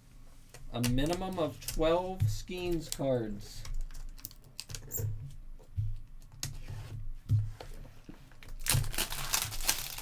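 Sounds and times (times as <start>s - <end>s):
foil wrapper crinkling: 8.5s - 10.0s.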